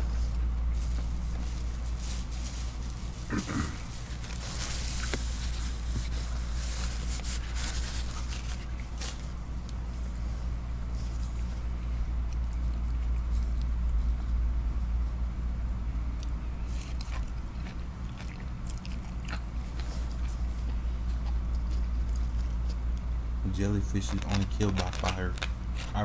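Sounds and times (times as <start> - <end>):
steady low hum: 0.0 - 26.0
man chewing and smacking food: 10.8 - 14.5, 16.1 - 23.2.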